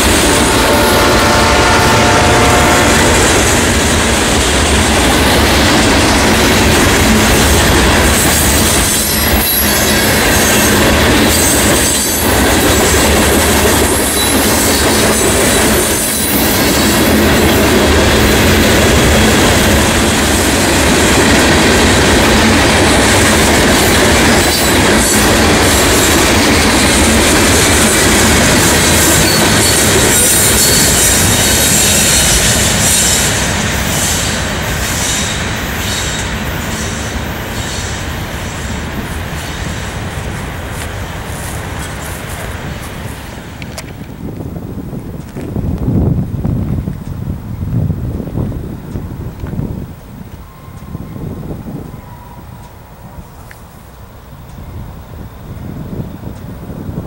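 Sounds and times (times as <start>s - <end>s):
freight train rumbling past: 0.0s - 57.0s
wheel squeal: 8.4s - 10.7s, 29.1s - 33.3s.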